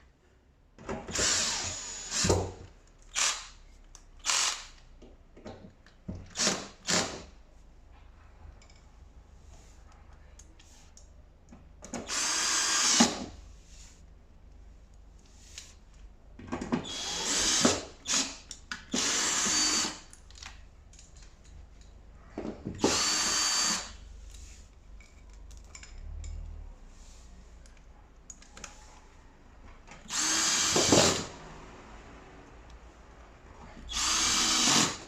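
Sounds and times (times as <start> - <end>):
power drill motor whine: 1.1 - 2.3, 4.2 - 4.6, 12.1 - 13.2, 16.9 - 18.2, 19.0 - 20.0, 22.8 - 23.9, 30.1 - 31.3, 33.9 - 35.0.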